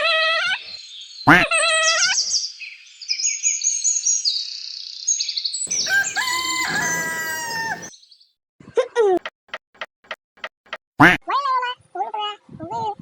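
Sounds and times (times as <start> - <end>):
birds chirping in high trills: 5.6 - 8.0
rooster crowing: 5.7 - 7.9
short wavering bird call: 5.7 - 7.9
sharp click: 9.2 - 10.8.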